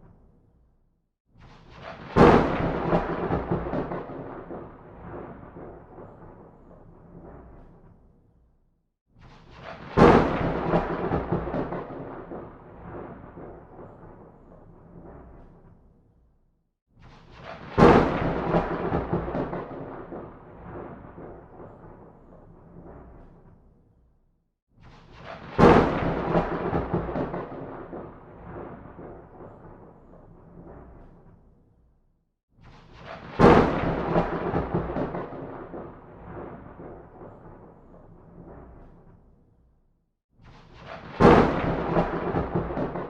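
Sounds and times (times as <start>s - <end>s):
thunderclap: 1.4s - 8.0s, 9.2s - 15.9s, 17.0s - 23.7s, 24.8s - 31.6s, 32.6s - 39.3s, 40.4s - 43.0s.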